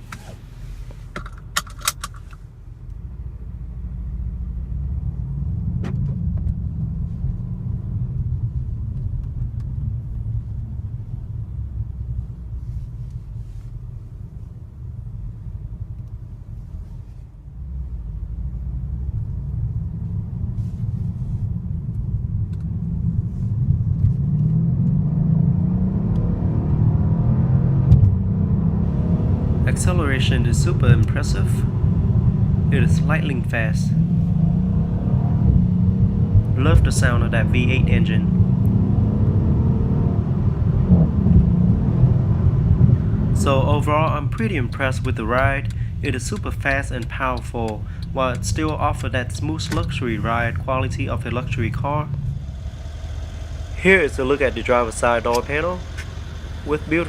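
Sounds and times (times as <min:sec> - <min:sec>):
car engine accelerating: 0:17.5 - 0:57.0
sharp clicks: 0:55.2 - 0:56.1.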